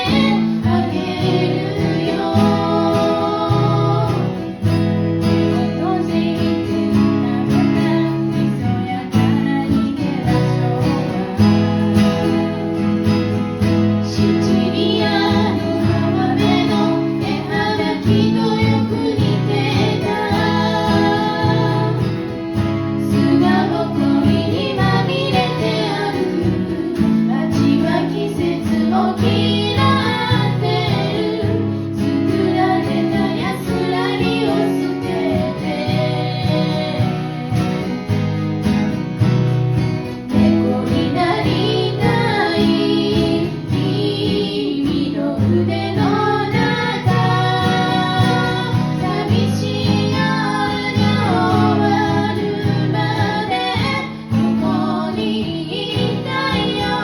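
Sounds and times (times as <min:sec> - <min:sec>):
acoustic guitar strumming: 0:00.0 - 0:57.0
person singing: 0:23.1 - 0:38.0.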